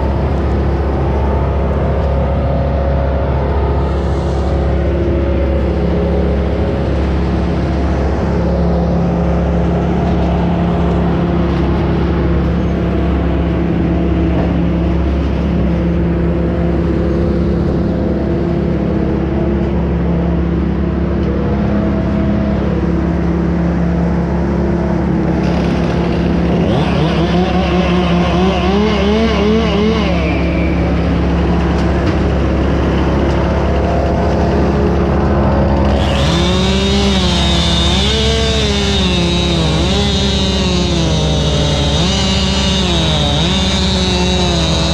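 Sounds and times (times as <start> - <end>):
engine running steadily: 0.0 - 44.9
second engine revving: 25.3 - 32.7, 35.8 - 44.9.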